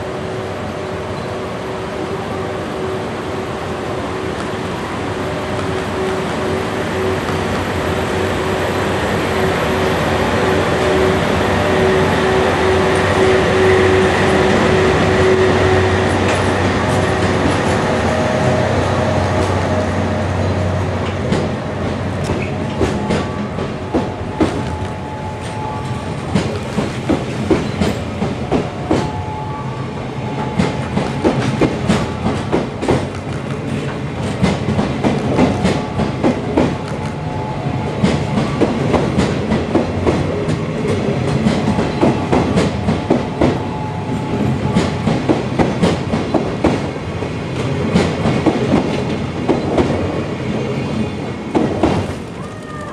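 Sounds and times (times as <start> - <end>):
train wheels clacking over rail joints: 19.3 - 29.1, 30.4 - 37.2, 38.0 - 43.6, 44.3 - 52.7.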